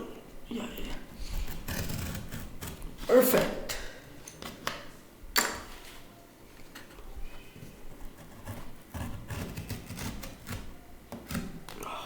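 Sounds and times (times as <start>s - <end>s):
cardboard being cut and handled: 8.0s - 11.8s.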